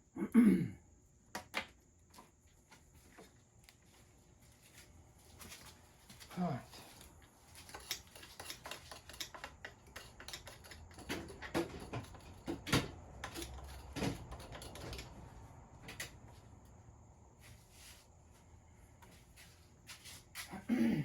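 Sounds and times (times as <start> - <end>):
tools and metal parts clicking: 7.5 - 15.2.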